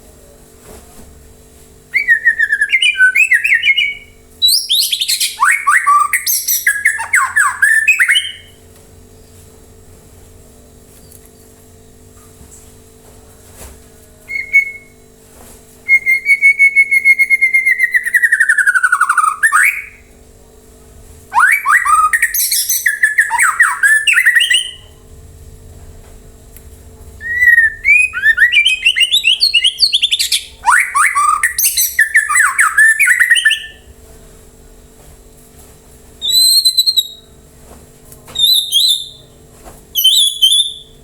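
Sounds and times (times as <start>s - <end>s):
faint steady hum: 0.0s - 41.0s
bird singing whistled phrases: 1.9s - 8.6s, 14.3s - 15.0s, 15.9s - 20.1s, 21.3s - 24.9s, 27.2s - 33.9s, 36.2s - 37.3s, 38.4s - 39.4s, 40.0s - 41.0s.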